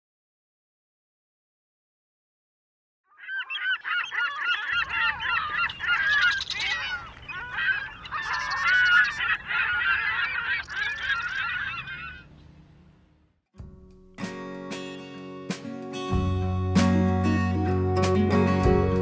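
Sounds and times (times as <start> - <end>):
flock of birds calling: 3.1 - 12.7.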